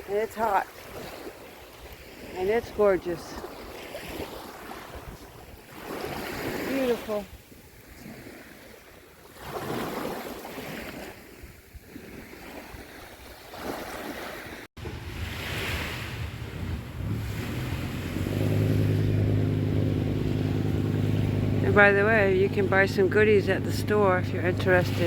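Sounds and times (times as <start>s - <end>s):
small waves washing on beach: 0.0s - 25.0s
wind on microphone: 14.8s - 25.0s
steady engine hum: 16.2s - 25.0s.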